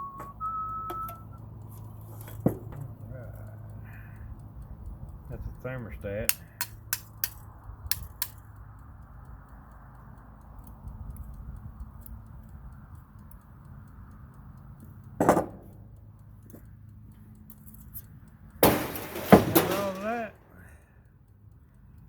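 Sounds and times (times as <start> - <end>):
small metal parts clicking: 0.9 - 5.3, 6.1 - 21.4
loud metallic clank: 18.6 - 20.6.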